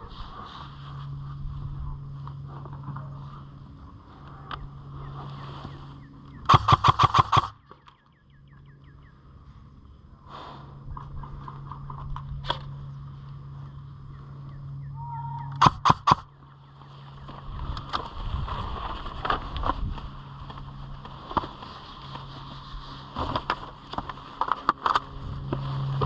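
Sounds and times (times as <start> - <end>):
airsoft rifle full-auto burst: 6.5 - 7.6, 15.6 - 16.3
single sharp airsoft shots: 6.5 - 7.6, 15.6 - 16.3.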